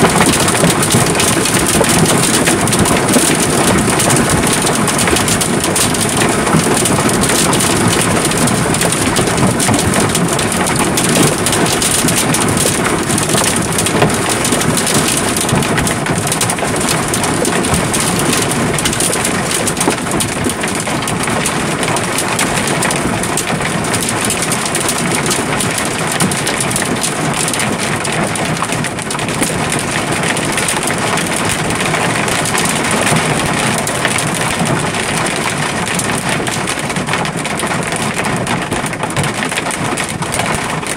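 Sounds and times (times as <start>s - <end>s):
hail pelting down: 0.0s - 40.9s.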